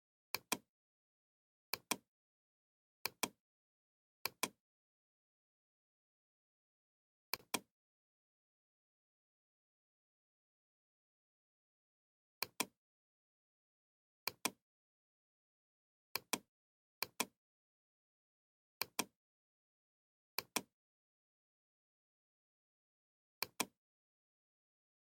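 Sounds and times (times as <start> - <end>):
computer mouse clicking: 0.3 - 0.7, 1.7 - 2.1, 3.0 - 3.4, 4.2 - 4.6, 7.4 - 7.7, 23.4 - 23.8.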